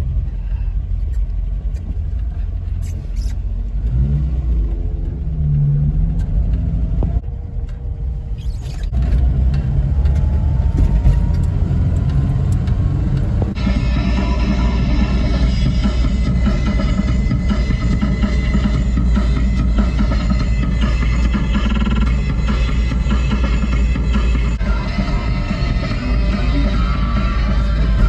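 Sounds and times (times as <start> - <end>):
car engine accelerating: 0.0 - 28.0
road rumble inside car: 0.0 - 28.0
music: 13.6 - 28.0.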